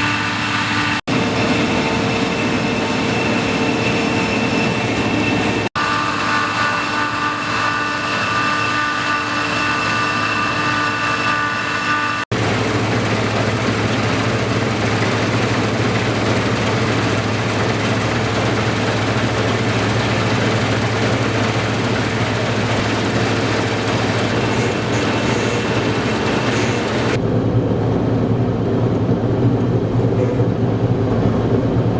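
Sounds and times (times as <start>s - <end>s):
whining machinery tones: 0.0s - 27.9s
combine harvester engine drone: 0.0s - 31.9s.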